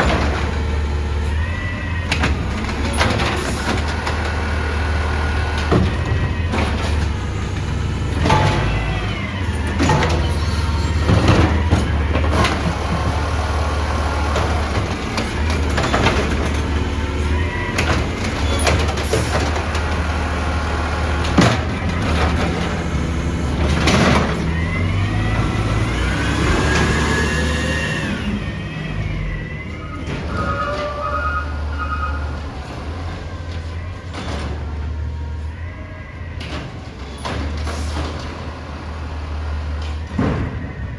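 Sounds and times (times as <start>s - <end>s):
diesel engine running: 0.0s - 40.9s
metal clanks and bangs: 5.6s - 13.6s, 39.8s - 40.9s.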